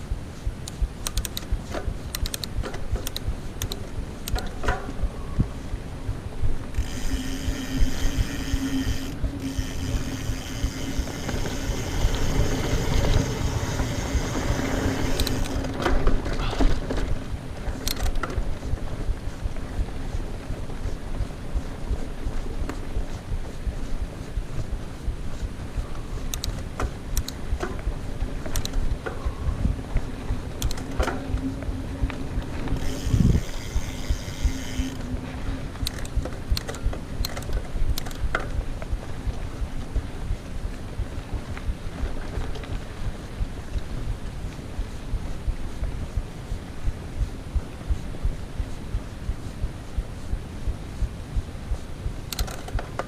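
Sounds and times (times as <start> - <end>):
wind on microphone: 0.0 - 53.0
bike clicks and rattles: 0.5 - 5.0, 6.6 - 24.2, 25.3 - 44.7, 52.2 - 53.0
bike tyres rumbling on dirt: 6.6 - 25.8, 26.8 - 46.0
freewheel hub buzzing: 6.7 - 15.8, 32.4 - 36.2.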